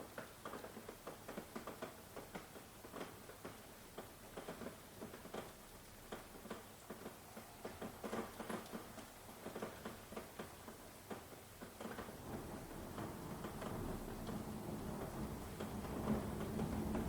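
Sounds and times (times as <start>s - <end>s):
heavy raindrops tapping: 11.1s - 17.0s
rain hissing: 12.1s - 17.0s.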